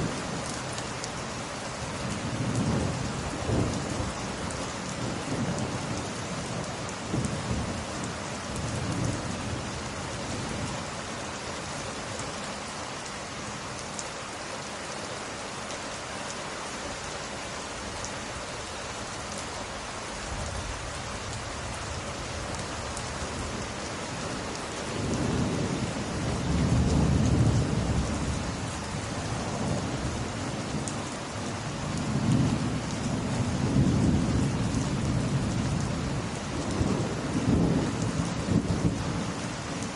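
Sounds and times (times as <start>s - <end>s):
steady rain falling: 0.0s - 39.9s
rolling thunder rumbles: 2.2s - 4.2s, 4.9s - 10.8s, 24.3s - 39.9s.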